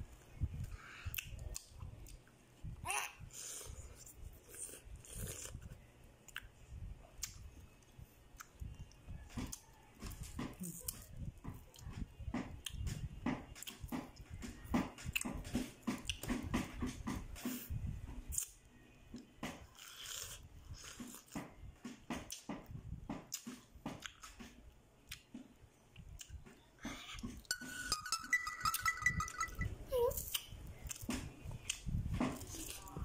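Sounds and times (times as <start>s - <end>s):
person chewing fruit: 0.6s - 2.4s, 3.4s - 11.9s, 15.1s - 16.4s, 19.2s - 21.5s, 23.2s - 27.7s
mouth clicks and smacks: 7.2s - 7.5s.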